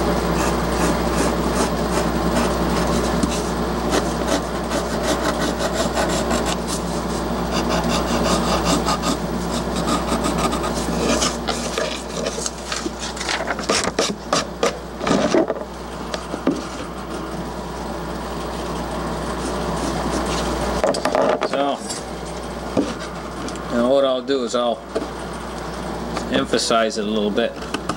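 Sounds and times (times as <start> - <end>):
steady low hum: 0.0 - 27.9
scraping against plywood: 0.4 - 15.5.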